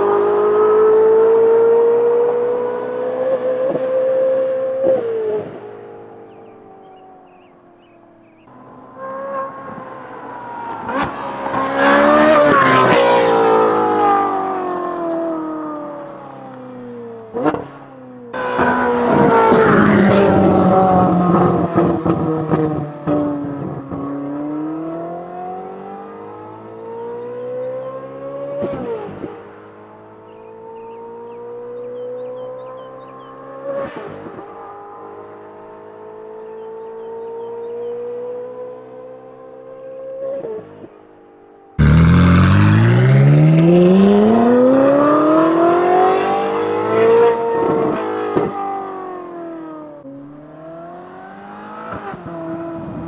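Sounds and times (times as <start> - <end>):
sports car engine revving: 8.3 - 26.3, 41.8 - 48.7
exhaust cracks: 41.8 - 45.1.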